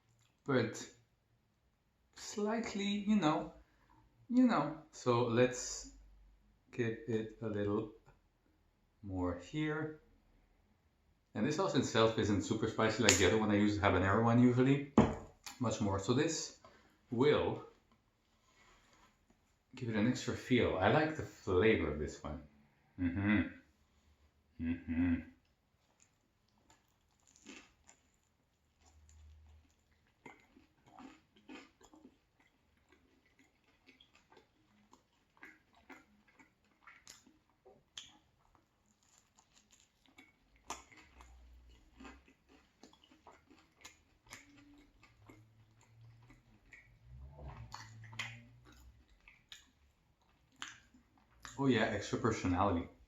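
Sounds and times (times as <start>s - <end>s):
chewing crunchy pizza: 15.4s - 20.2s, 25.4s - 52.9s
wet mouth clicks: 35.3s - 38.7s, 42.9s - 51.6s.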